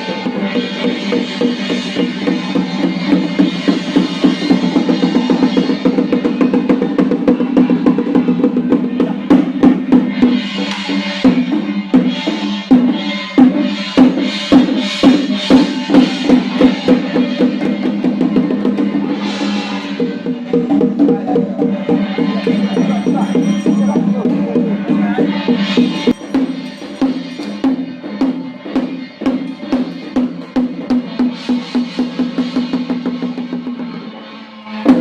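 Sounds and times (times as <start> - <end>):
cymbal crashes: 0.0 - 35.0
drums beating: 0.0 - 35.0
held melodic tone: 15.5 - 29.6.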